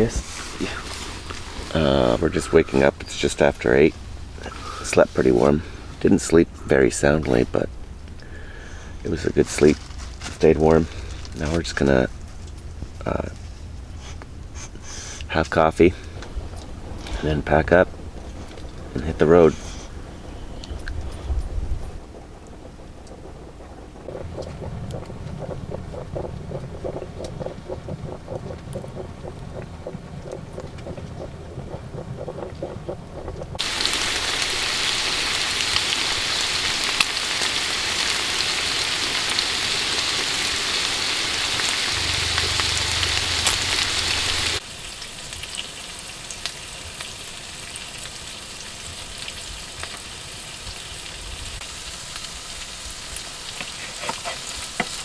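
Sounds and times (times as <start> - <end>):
low pulsing sound: 20.0 - 33.9, 41.0 - 44.6
food sizzling in a pan: 33.6 - 55.0.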